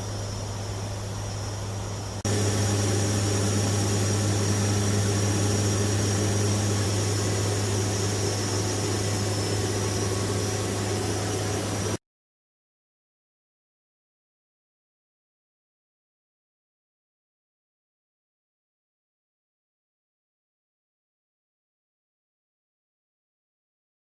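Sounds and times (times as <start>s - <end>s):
turboprop aircraft engines droning: 0.0s - 12.0s.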